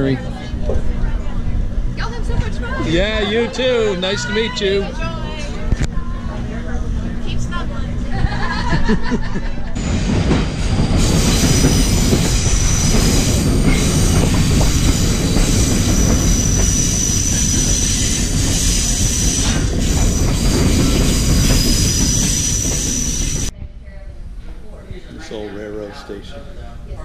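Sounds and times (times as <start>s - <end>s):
train wheels rumbling on rail: 0.0s - 23.6s
high wheel squeal: 9.8s - 23.5s.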